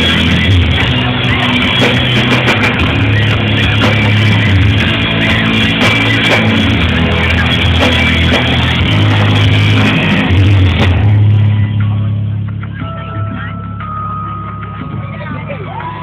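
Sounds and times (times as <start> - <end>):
drums and cymbals: 0.0 - 16.0
live rock band playing: 0.0 - 16.0.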